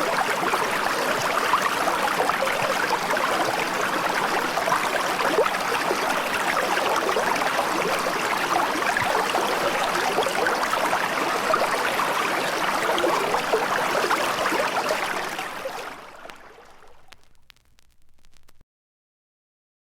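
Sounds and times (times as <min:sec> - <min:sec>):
running water: 0:00.0 - 0:17.4
faint clicks: 0:16.1 - 0:18.6.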